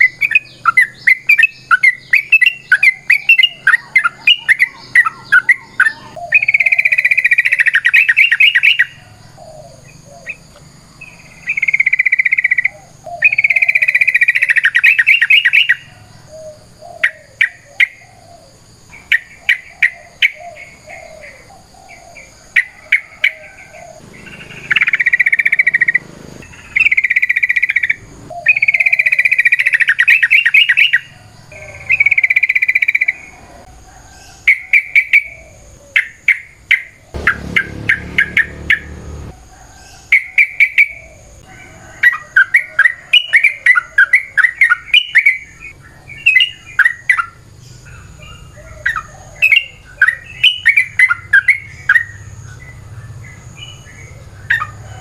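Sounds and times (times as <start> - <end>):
bird singing chattering notes: 0.0 - 18.0, 19.0 - 33.3.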